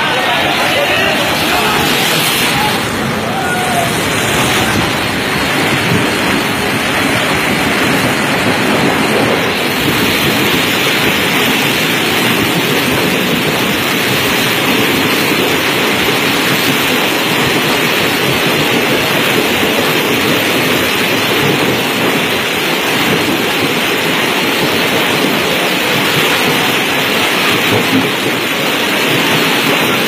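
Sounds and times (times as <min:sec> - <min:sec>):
train rushing roar: 0:00.0 - 0:30.0.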